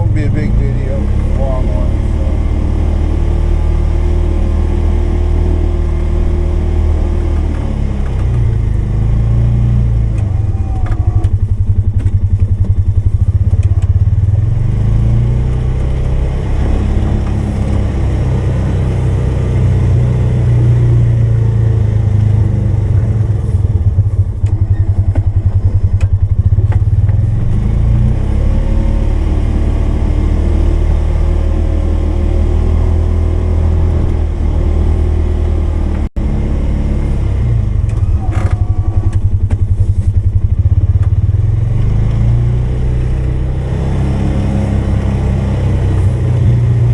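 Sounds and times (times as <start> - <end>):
engine revving while plowing: 0.0 - 46.9.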